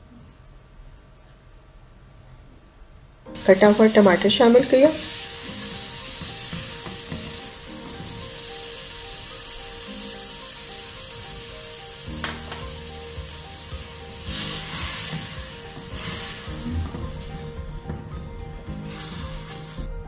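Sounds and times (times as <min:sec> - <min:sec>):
spatula stirring in pan: 0:03.4 - 0:08.4, 0:13.1 - 0:19.9
tomatoes sizzling in hot oil: 0:03.4 - 0:19.9.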